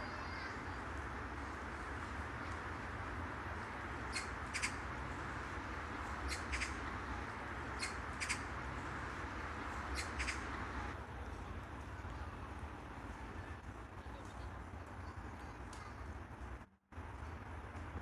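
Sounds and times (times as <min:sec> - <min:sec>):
park ambience hum: 0:00.0 - 0:18.0
bird calling in paired notes: 0:07.7 - 0:08.6, 0:09.8 - 0:10.8.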